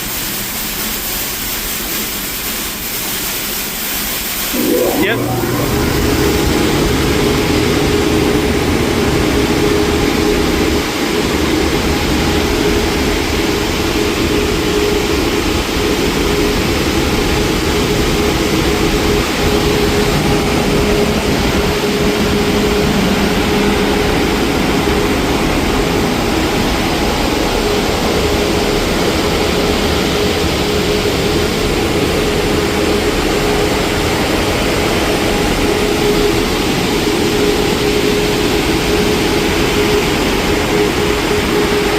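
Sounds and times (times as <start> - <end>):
car wash rushing water: 0.0 - 41.9
constant hum: 4.5 - 41.9.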